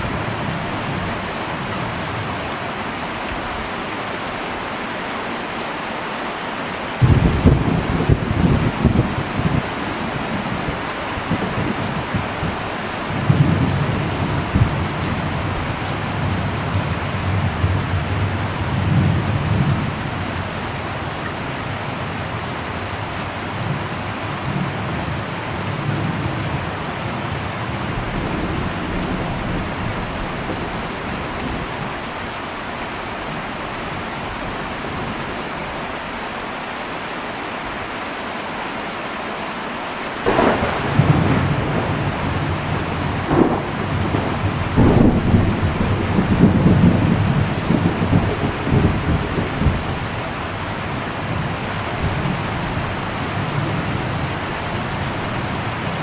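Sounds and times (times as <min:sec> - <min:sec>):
heavy rain on metal roof: 0:00.0 - 0:56.0
thunder rumble: 0:07.0 - 0:22.4, 0:40.2 - 0:56.0.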